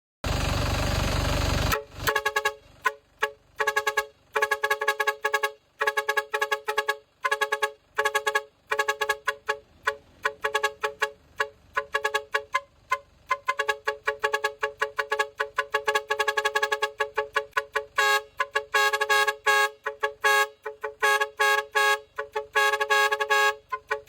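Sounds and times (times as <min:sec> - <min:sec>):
two-tone horn beeps: 0:01.7 - 0:24.0.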